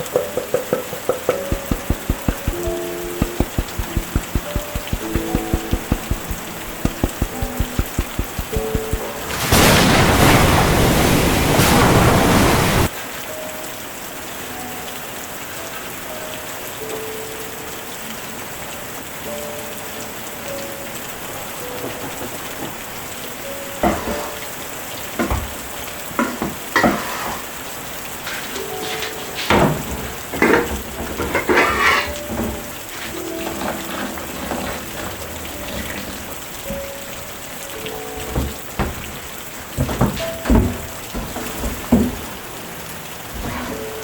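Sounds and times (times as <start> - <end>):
heavy rain: 0.9 - 17.1
sharp knocks: 1.3 - 9.8.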